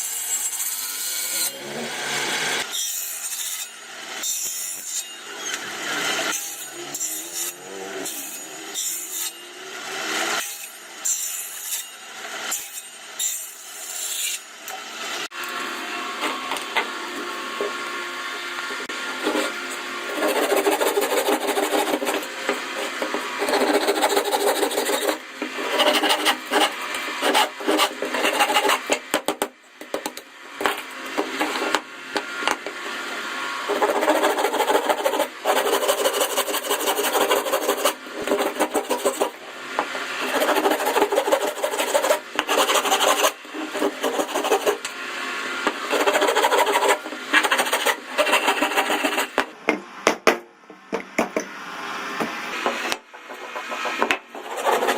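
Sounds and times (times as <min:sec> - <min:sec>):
hand tool rasping wood: 0:19.2 - 0:29.4, 0:33.7 - 0:44.9, 0:45.6 - 0:49.5, 0:52.6 - 0:54.9.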